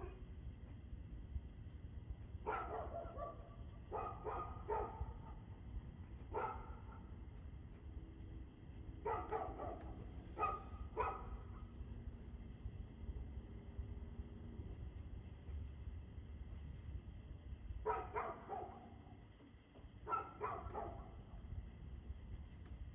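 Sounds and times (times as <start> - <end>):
low background rumble: 0.0 - 22.9
dog barking: 2.4 - 5.4, 6.3 - 7.1, 9.0 - 11.6, 17.8 - 19.0, 20.0 - 21.2.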